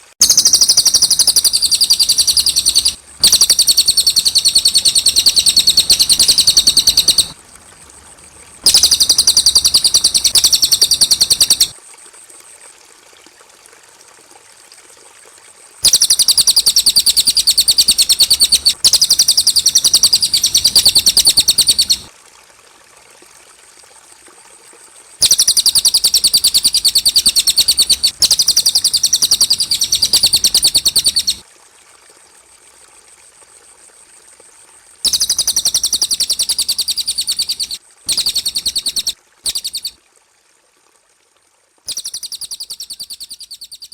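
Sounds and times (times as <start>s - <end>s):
bird fast high chirping: 0.2s - 7.4s, 8.6s - 11.7s, 15.8s - 22.1s, 25.2s - 31.4s, 35.1s - 39.9s, 41.9s - 43.9s.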